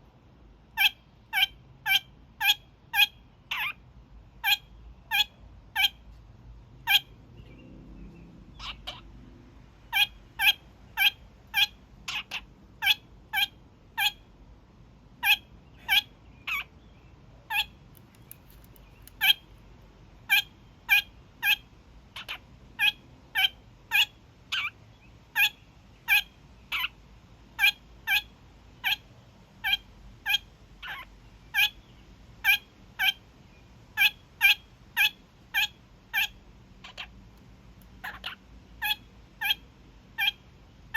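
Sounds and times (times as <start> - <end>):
parakeet honking calls: 0.8 - 3.8, 4.4 - 6.0, 6.8 - 7.1, 8.5 - 9.1, 9.9 - 14.3, 15.2 - 16.7, 17.4 - 19.4, 20.3 - 24.8, 25.4 - 27.0, 27.6 - 29.0, 29.6 - 31.8, 32.4 - 33.2, 34.0 - 37.1, 38.0 - 40.4.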